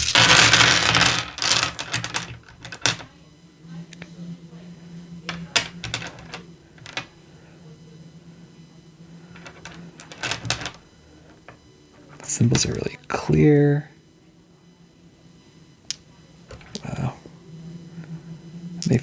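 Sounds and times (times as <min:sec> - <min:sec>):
packaging rustling: 0:00.0 - 0:00.6
dice clicking together: 0:00.0 - 0:03.1, 0:05.4 - 0:07.1, 0:09.4 - 0:10.8, 0:15.9 - 0:16.9.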